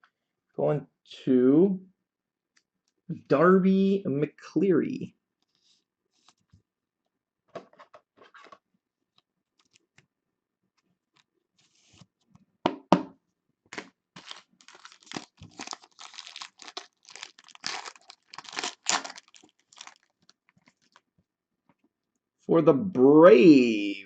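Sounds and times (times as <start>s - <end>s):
plastic wrapper tearing and crinkling: 13.7s - 21.0s.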